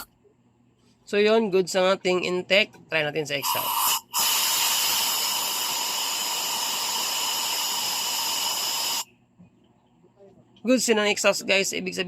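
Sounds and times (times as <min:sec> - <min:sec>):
compressed air hissing: 0:03.4 - 0:09.1.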